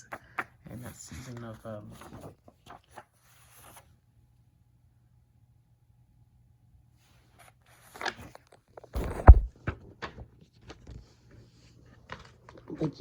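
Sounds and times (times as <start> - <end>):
loud thump: 9.0 - 9.5.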